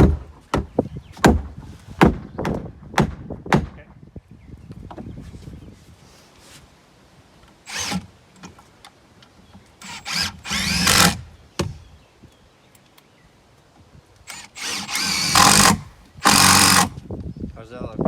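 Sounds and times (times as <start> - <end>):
power drill driving screws: 7.6 - 8.1, 9.8 - 11.3, 14.3 - 17.0.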